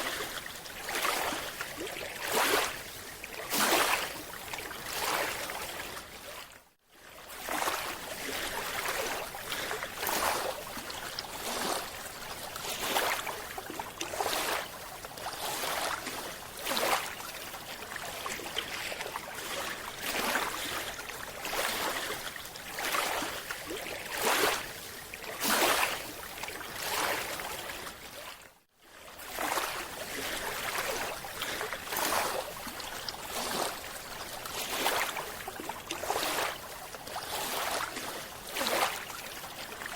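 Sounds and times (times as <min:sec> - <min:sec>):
rushing bubbling water: 0:00.0 - 0:06.0.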